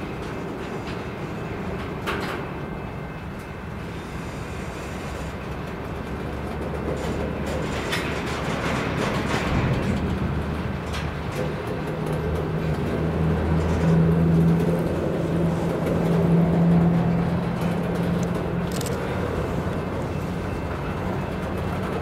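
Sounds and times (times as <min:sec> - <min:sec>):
steel wheels rumbling on rail: 0:00.0 - 0:22.0
wheels clicking over rail joints: 0:05.1 - 0:22.0.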